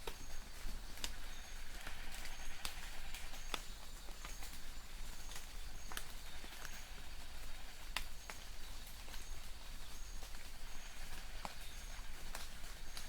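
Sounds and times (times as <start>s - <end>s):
light rain on leaves: 0.0s - 13.0s.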